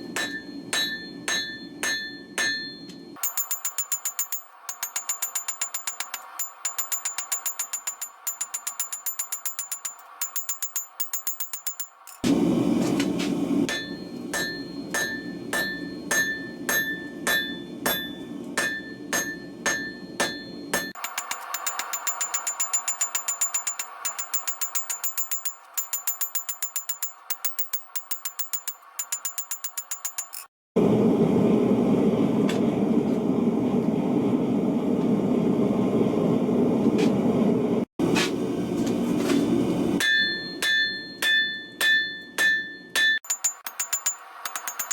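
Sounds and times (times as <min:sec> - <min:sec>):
hammer ringing on anvil: 0:00.0 - 0:12.2, 0:13.7 - 0:30.5, 0:40.0 - 0:44.9
gas burner roaring: 0:12.2 - 0:21.5, 0:30.8 - 0:40.0.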